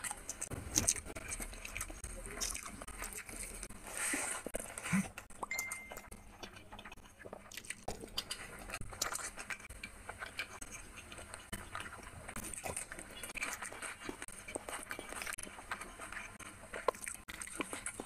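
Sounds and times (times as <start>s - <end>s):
fingers squishing in rice: 0.0s - 18.0s
wet chewing and mouth smacking: 0.0s - 18.0s.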